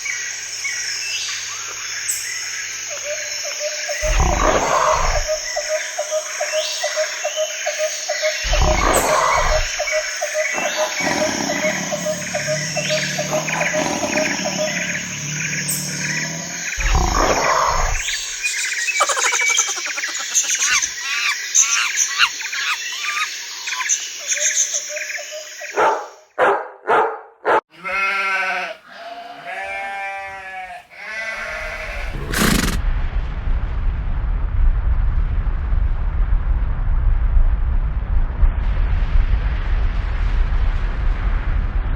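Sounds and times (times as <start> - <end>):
animal calls: 2.9 - 26.2, 27.8 - 32.8
low rumble: 8.5 - 10.0, 31.8 - 41.9.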